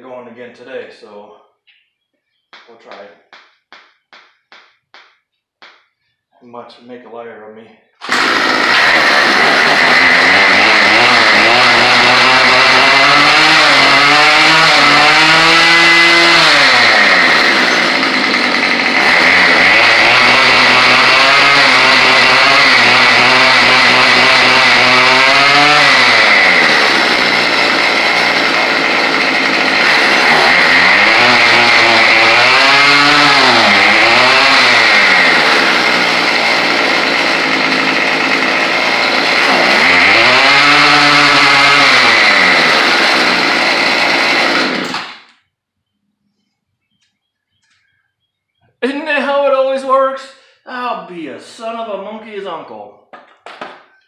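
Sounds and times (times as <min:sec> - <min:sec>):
string trimmer engine revving: 0:08.0 - 0:45.4.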